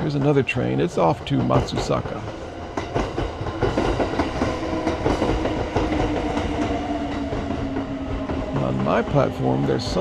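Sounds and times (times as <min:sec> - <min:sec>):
train wheels clacking: 0:00.0 - 0:10.0.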